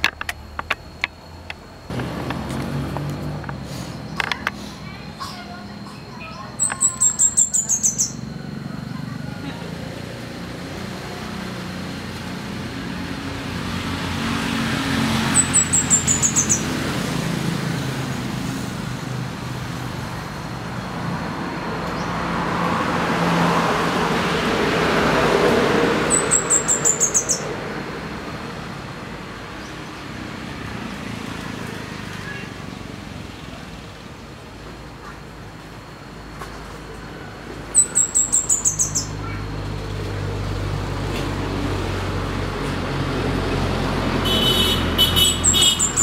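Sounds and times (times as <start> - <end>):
road traffic: 0.0 - 46.0
bird singing high thin notes: 5.9 - 8.2.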